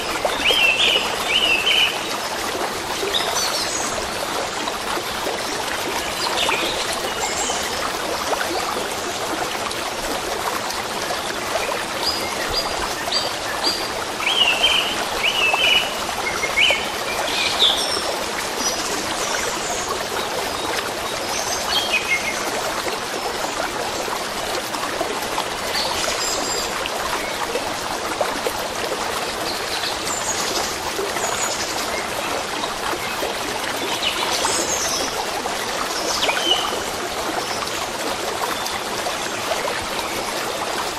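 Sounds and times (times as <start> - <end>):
stream trickling: 0.0 - 40.9.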